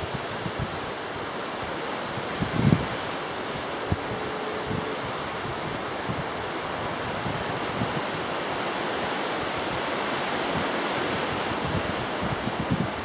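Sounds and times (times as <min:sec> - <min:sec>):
gusting wind on microphone: 0:00.0 - 0:13.0.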